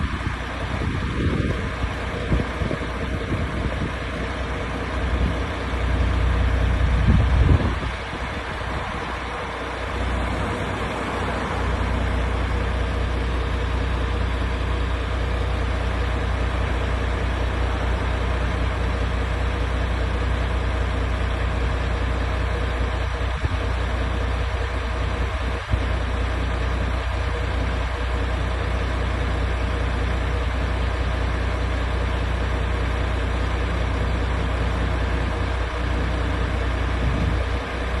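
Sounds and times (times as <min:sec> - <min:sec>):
truck diesel engine idling: 0:00.0 - 0:38.0.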